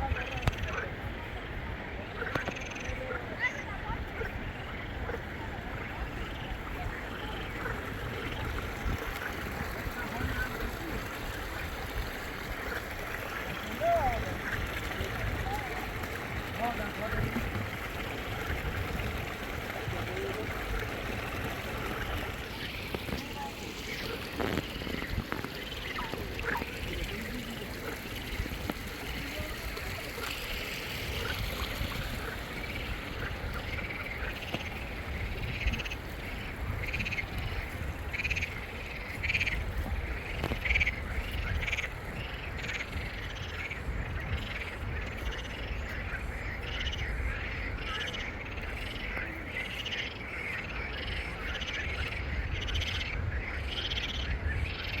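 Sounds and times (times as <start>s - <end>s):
frogs croaking in chorus: 0.0s - 55.0s.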